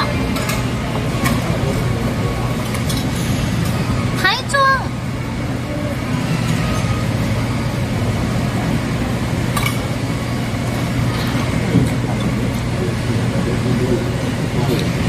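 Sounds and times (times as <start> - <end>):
low background hum: 0.0 - 15.0
tableware clinking: 2.6 - 3.8, 9.5 - 10.0.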